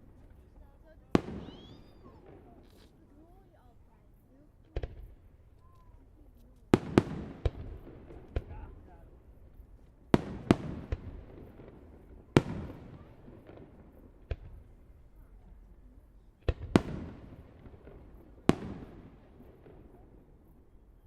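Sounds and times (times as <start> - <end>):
fireworks bangs with echo: 0.0 - 3.4, 4.7 - 5.2, 6.7 - 9.2, 10.1 - 15.1, 16.4 - 20.6.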